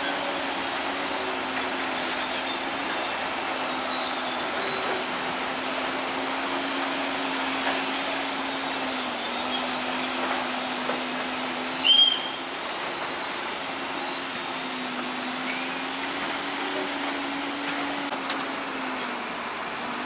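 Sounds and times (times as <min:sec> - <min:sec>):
heavy machinery engine drone: 0:00.0 - 0:20.0
high squeal: 0:01.8 - 0:05.5, 0:11.6 - 0:16.6.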